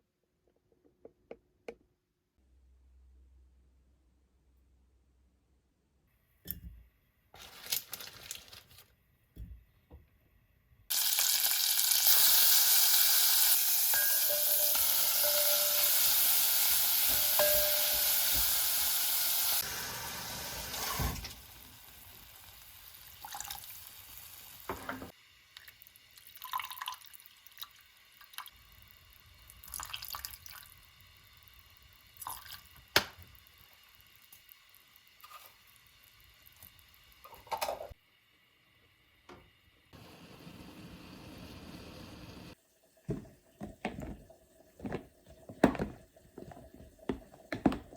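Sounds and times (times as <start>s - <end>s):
tap water running into sink: 43.0s - 47.9s.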